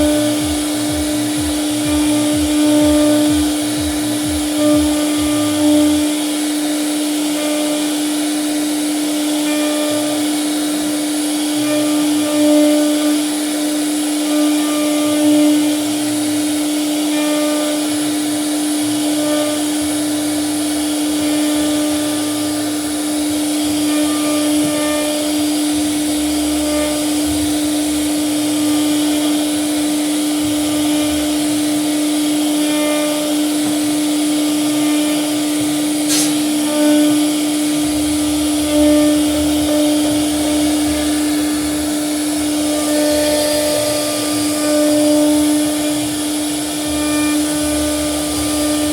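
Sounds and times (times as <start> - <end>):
router spindle whining cutting wood: 0.0 - 48.9
sharp click: 36.1 - 36.5.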